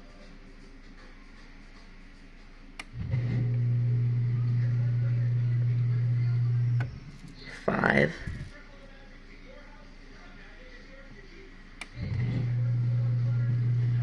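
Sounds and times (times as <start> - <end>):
dishwasher motor humming: 2.8 - 7.2, 11.8 - 14.0.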